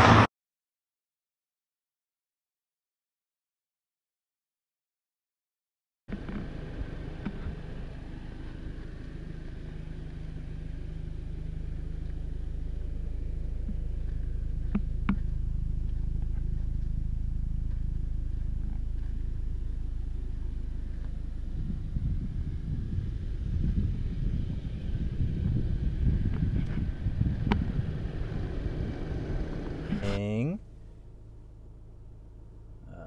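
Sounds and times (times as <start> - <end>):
car engine idling: 6.1 - 33.0.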